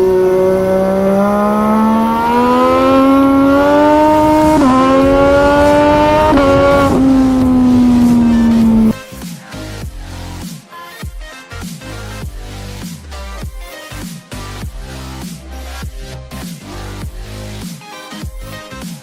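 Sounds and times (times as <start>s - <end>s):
sport motorcycle engine accelerating: 0.0s - 9.0s.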